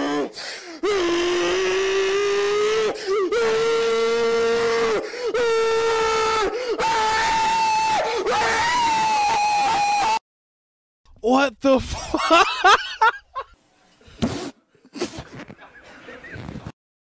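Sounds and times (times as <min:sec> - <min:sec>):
man screaming: 0:00.8 - 0:10.2.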